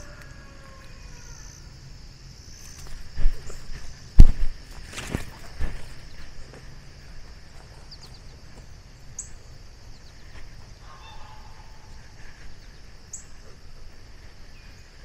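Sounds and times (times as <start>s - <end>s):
high insect drone: 0.0s - 15.0s
bird call: 10.8s - 13.4s.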